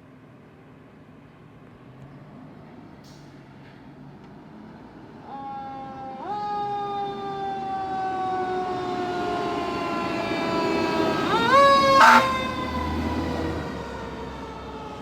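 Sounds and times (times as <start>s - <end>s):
fire truck siren wailing: 6.1s - 15.0s
low traffic rumble: 9.3s - 15.0s.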